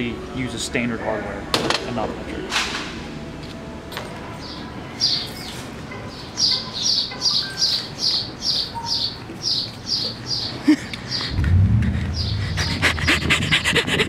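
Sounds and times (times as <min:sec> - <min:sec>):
low rumble: 0:11.3 - 0:14.0.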